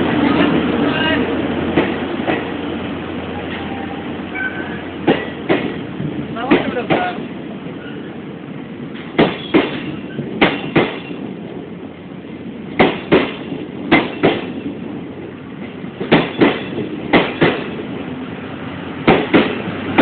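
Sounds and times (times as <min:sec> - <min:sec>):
train wheels clicking over rail joints: 0:01.6 - 0:02.6, 0:04.4 - 0:08.1, 0:08.9 - 0:11.6, 0:12.6 - 0:18.0, 0:19.0 - 0:20.0.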